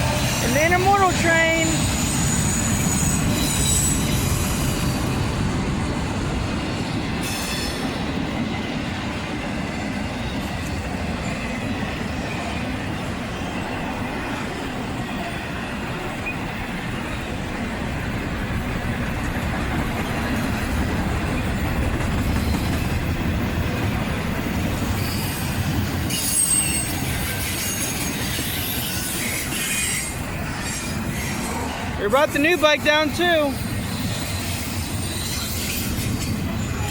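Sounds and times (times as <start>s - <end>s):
train wheels rumbling on rail: 0.0s - 36.9s
high-pitched wheel squeal: 1.6s - 5.0s, 25.0s - 31.6s.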